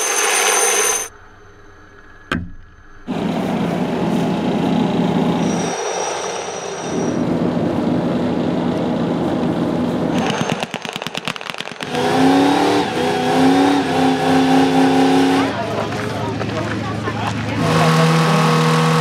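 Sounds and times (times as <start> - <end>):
car engine running: 1.2 - 10.8, 11.8 - 19.0
engine at high revs: 3.1 - 10.5, 11.8 - 19.0
crackle of sharp pops: 10.2 - 12.1
tyres spinning in burnout: 11.8 - 19.0.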